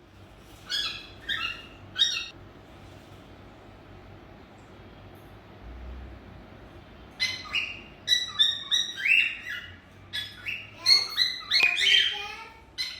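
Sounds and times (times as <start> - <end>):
cockatiels chirping: 0.5 - 2.4, 7.2 - 12.9.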